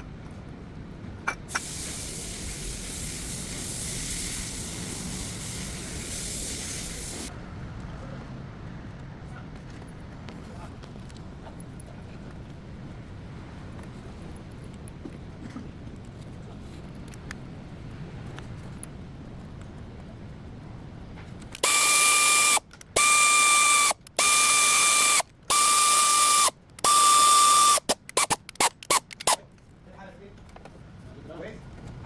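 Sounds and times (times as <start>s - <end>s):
powered ratchet wrench whirring: 1.5s - 7.3s, 21.6s - 29.4s.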